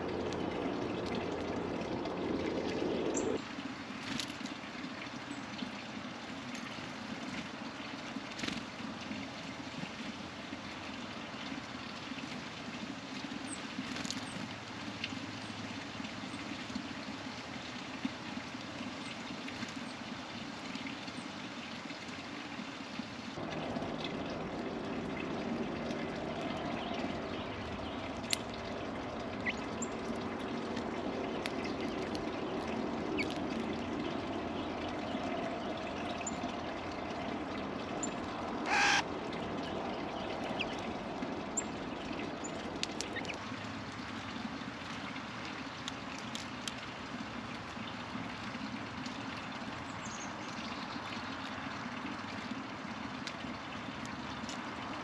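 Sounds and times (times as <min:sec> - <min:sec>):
small birds chirping faintly: 0:24.8 - 0:43.4
loud harsh bird call: 0:38.7 - 0:39.0.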